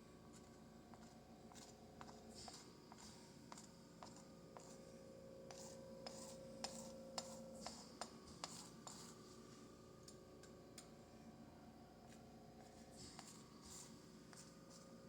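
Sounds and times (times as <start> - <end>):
faint steady hum: 0.0 - 15.0
palette knife tapping and scraping: 0.4 - 4.9, 5.5 - 9.4, 12.1 - 14.9.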